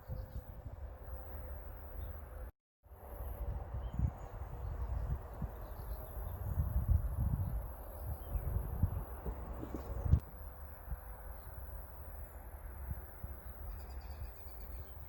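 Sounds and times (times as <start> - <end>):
wind buffeting microphone: 0.0 - 1.4, 3.0 - 11.9.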